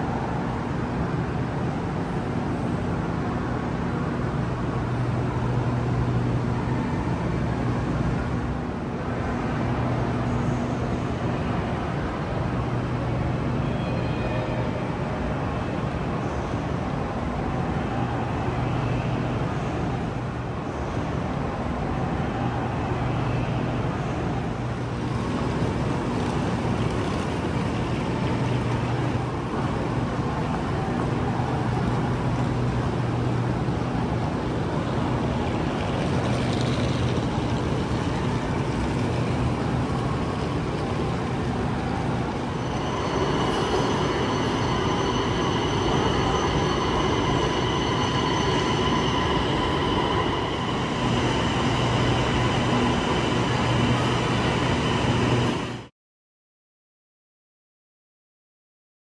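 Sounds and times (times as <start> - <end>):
low train hum: 0.0 - 55.9
high steady whining tones: 15.8 - 55.9
station din: 40.6 - 55.8.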